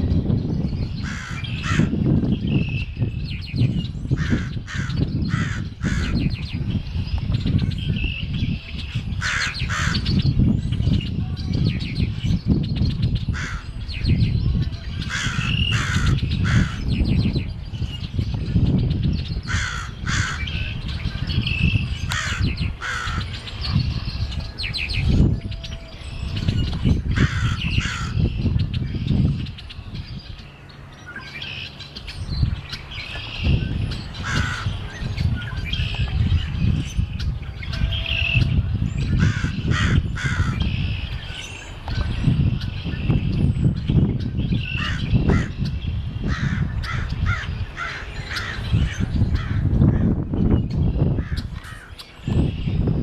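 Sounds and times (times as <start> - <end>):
birds chirping: 0.0 - 53.0
crow cawing: 1.0 - 2.0, 4.2 - 6.2, 13.4 - 13.7, 15.1 - 16.8, 19.5 - 20.5, 22.1 - 23.3, 27.2 - 28.2, 34.2 - 34.7, 39.2 - 40.7, 46.3 - 48.6.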